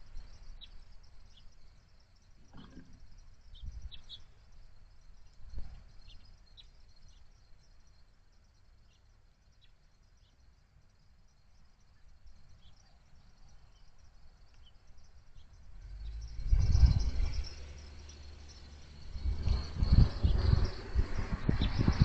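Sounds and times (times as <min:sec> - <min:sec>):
high insect drone: 0:03.0 - 0:22.0
low rumble: 0:16.0 - 0:22.0.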